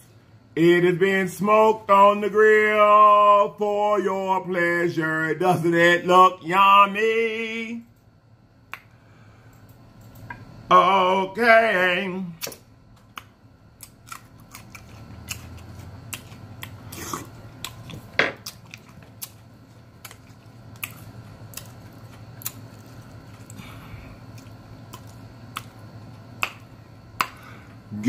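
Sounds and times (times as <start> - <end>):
faint low hum: 0.0 - 28.0
person chewing food: 12.4 - 27.6.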